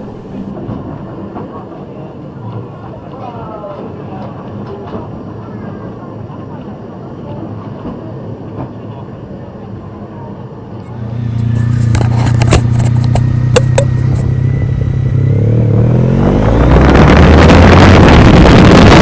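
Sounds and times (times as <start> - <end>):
motorcycle engine revving: 0.0 - 0.5, 10.9 - 19.0
wind rush on microphone: 11.1 - 19.0.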